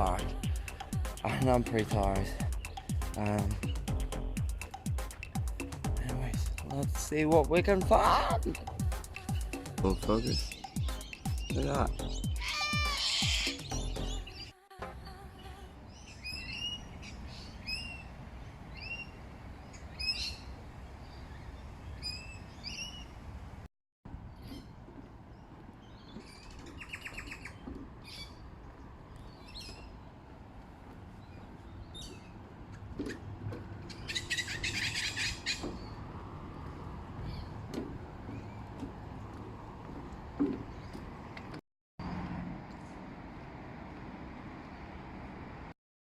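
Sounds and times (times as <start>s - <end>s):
bird calling: 0.0s - 14.5s, 15.3s - 23.2s, 24.3s - 30.3s, 31.1s - 41.5s
bird harsh chattering: 9.2s - 14.2s, 33.9s - 35.9s.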